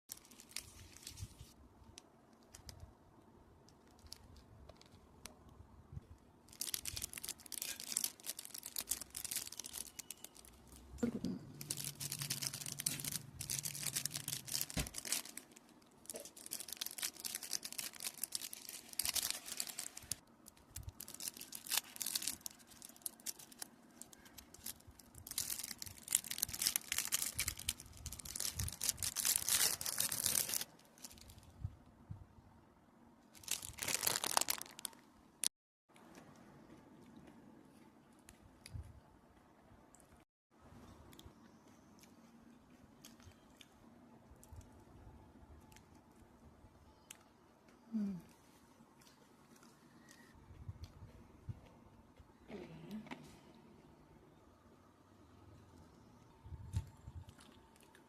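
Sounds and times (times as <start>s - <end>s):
marshmallows crackling and tearing: 6.4s - 10.8s, 11.6s - 31.4s, 33.3s - 35.0s.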